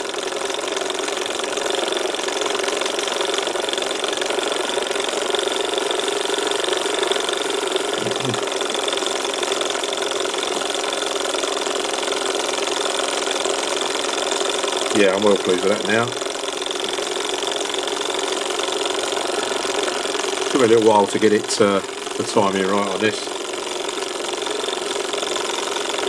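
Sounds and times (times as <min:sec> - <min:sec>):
hot air engine running: 0:00.0 - 0:26.0.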